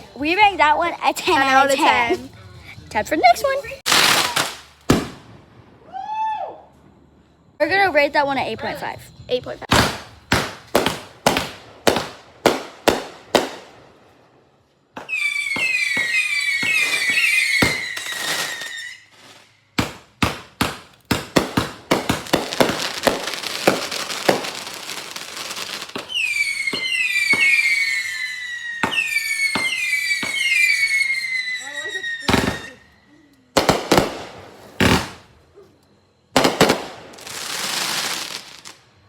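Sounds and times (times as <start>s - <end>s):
rapid firework cracks and pops: 3.9s - 5.2s, 9.7s - 13.7s, 19.8s - 28.1s, 28.8s - 30.8s
firework bangs: 3.9s - 6.0s, 9.7s - 13.9s, 14.9s - 32.9s, 33.6s - 35.4s, 36.3s - 38.8s
falling firework whistles: 3.9s - 7.6s, 14.9s - 39.0s.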